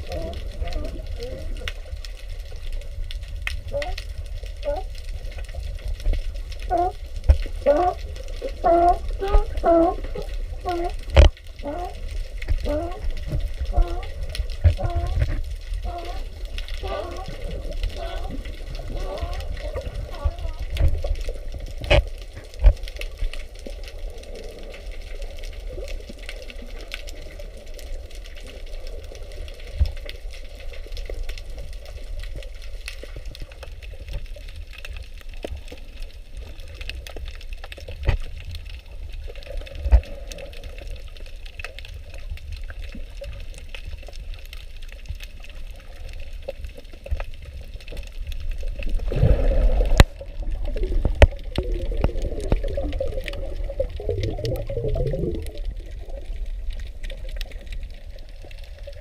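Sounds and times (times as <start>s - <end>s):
water splashing and rushing: 0.0s - 59.0s
low rumble: 48.8s - 57.3s.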